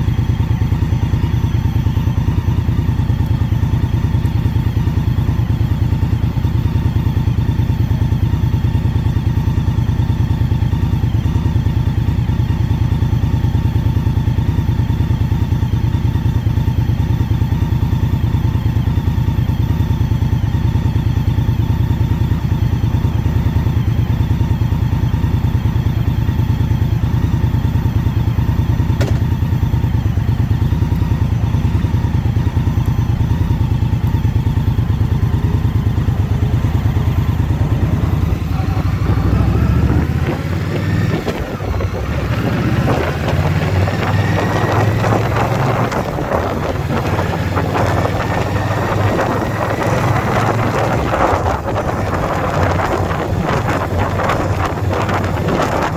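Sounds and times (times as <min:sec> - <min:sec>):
motorcycle engine running: 0:00.0 - 0:55.9
wind noise on microphone: 0:35.2 - 0:55.9.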